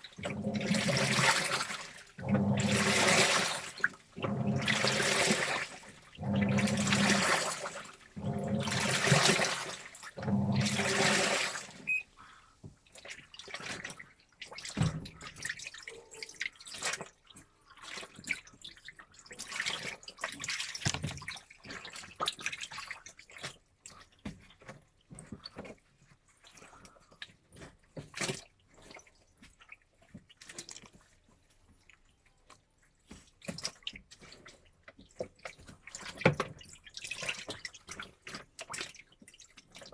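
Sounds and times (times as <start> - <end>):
water sloshing and dripping: 0.0 - 39.9
washing machine drum turning: 6.2 - 7.6, 10.2 - 11.2.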